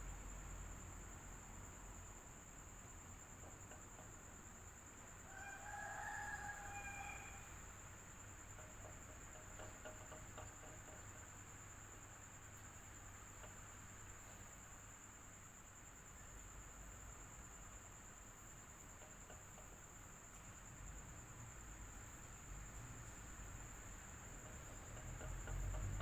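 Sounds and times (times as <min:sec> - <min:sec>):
rooster crowing faintly: 0:05.0 - 0:11.0.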